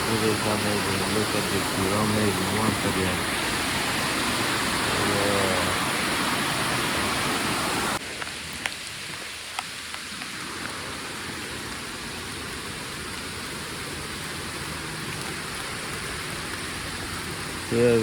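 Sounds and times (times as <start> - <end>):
sharp drips: 0.0 - 6.2
heavy rain: 0.0 - 18.0.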